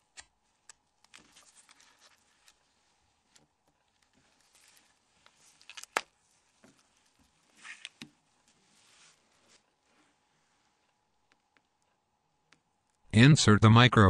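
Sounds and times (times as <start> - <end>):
plastic phone parts handling: 0.6 - 8.2.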